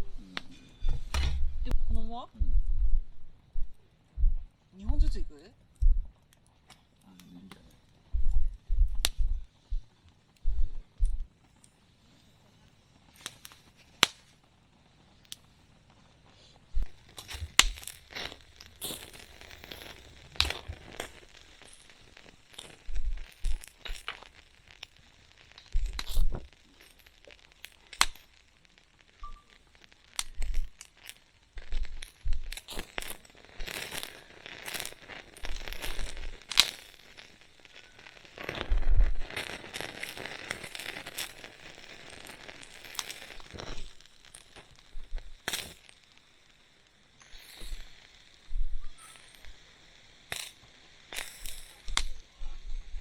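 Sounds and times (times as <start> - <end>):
low bumps: 0.0 - 5.2, 8.1 - 11.3
sharp pops: 0.0 - 11.8, 13.1 - 14.5, 15.3 - 53.0
wood fire crackling: 0.0 - 53.0.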